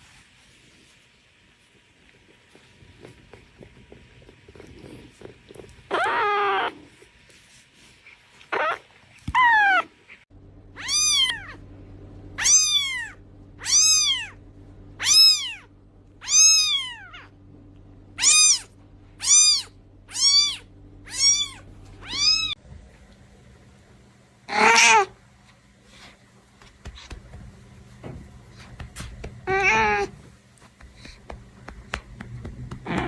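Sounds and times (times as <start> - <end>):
cat meowing: 5.9 - 6.8, 10.8 - 11.6, 12.4 - 14.4, 15.0 - 17.3, 18.2 - 22.6, 24.5 - 25.1, 29.4 - 30.2
low hum: 10.3 - 24.5.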